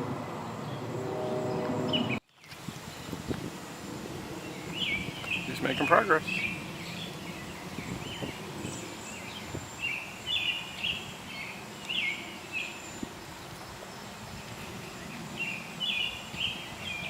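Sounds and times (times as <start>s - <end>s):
outdoor background noise: 0.0s - 17.0s
faint high insect hum: 1.9s - 17.0s
songbird singing quick notes: 4.4s - 13.0s.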